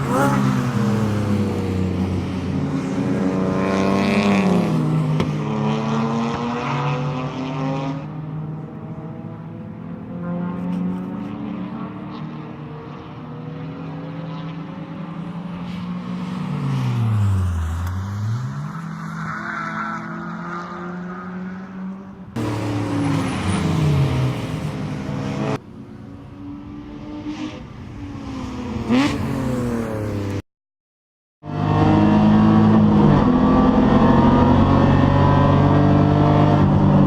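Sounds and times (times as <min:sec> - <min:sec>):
race car engine revving: 0:00.0 - 0:15.4.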